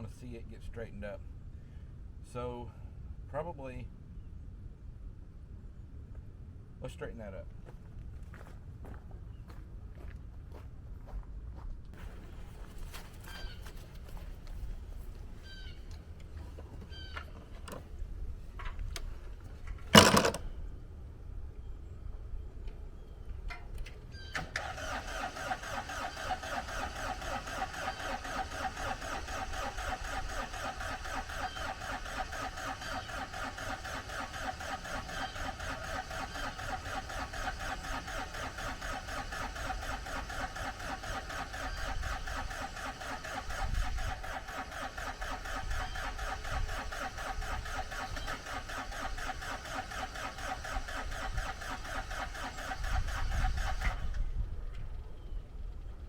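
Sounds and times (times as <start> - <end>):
engine running with fast pulse: 12.0 - 56.0.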